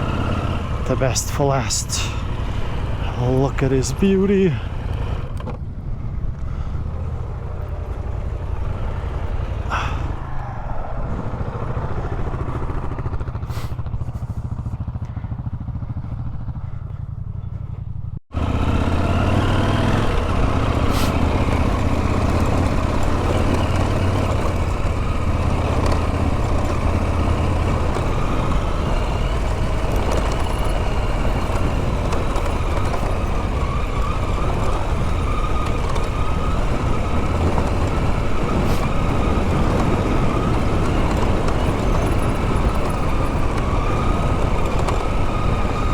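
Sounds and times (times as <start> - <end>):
motorcycle engine running: 0.0 - 45.9
wind rush: 9.3 - 14.6, 33.4 - 45.9.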